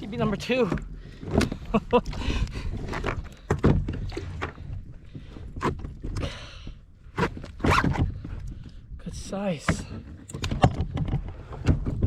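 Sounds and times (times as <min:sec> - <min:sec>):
fish thrashing against kayak hull: 0:00.6 - 0:08.9.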